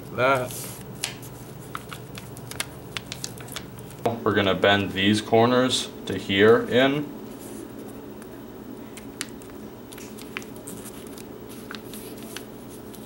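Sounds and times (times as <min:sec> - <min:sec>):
paper crinkling and ticking: 0:00.1 - 0:04.1, 0:08.9 - 0:13.0
paper rustle: 0:00.2 - 0:04.0, 0:08.9 - 0:13.0.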